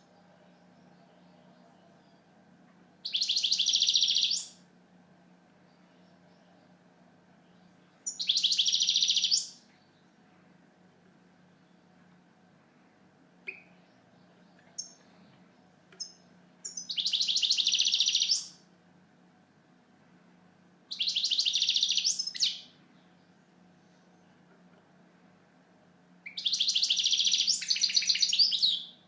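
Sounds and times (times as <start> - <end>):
finch twittering song: 3.0 - 4.6, 7.4 - 10.1, 13.4 - 18.6, 20.9 - 24.4, 26.2 - 29.0.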